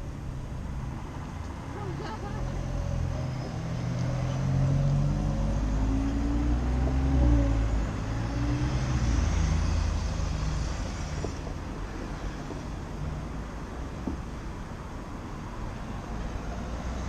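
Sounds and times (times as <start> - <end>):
road noise: 0.0 - 17.0
vehicle passing with low hum: 0.0 - 17.0.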